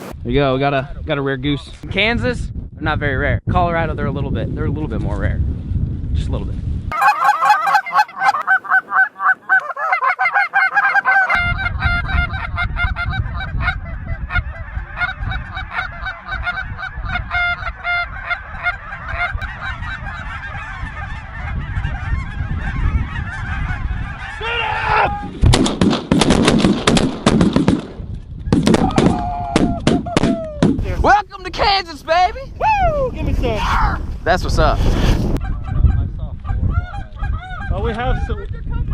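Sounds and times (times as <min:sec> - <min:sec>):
wind rumbling on microphone: 0:00.0 - 0:09.8, 0:10.9 - 0:38.9
geese honking: 0:06.9 - 0:24.8
shotgun blasts: 0:25.5 - 0:30.8.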